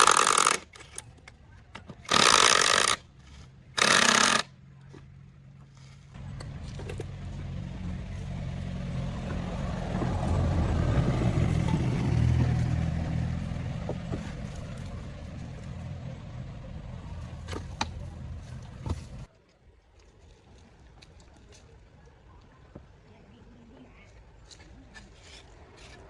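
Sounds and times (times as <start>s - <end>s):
vehicle engine humming: 0.0s - 19.3s
sharp clicks: 2.0s - 3.0s, 3.8s - 4.5s.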